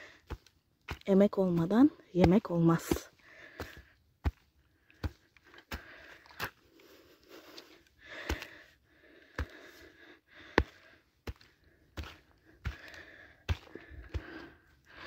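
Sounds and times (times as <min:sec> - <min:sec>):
hoe striking soil: 0:00.2 - 0:05.8.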